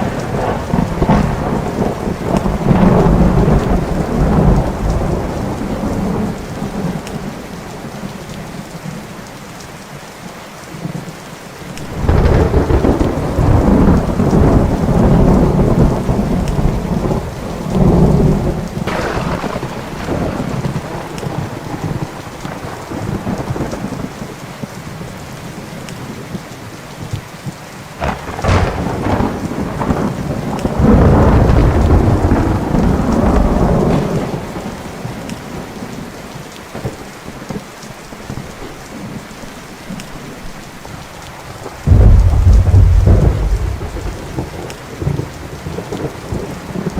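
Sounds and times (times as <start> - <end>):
sharp thunder crack: 0.0 - 5.3, 11.8 - 17.2, 17.8 - 22.0, 28.0 - 34.4, 41.8 - 45.8
rolling thunder: 0.0 - 7.4, 11.8 - 24.1, 28.0 - 36.0, 41.6 - 46.9
steady rain: 0.0 - 46.9.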